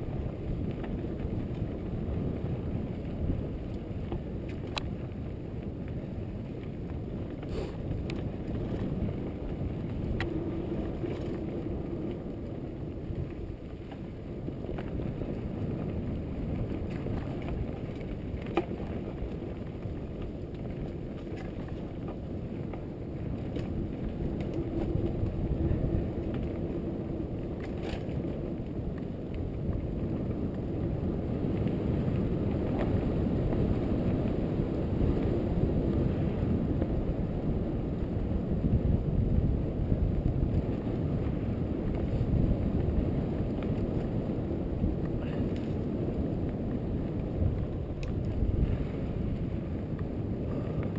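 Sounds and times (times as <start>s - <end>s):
bike tyres rumbling on trail: 0.0s - 50.9s
wind on microphone: 0.0s - 50.9s
bike clicks and rattles: 0.1s - 30.3s.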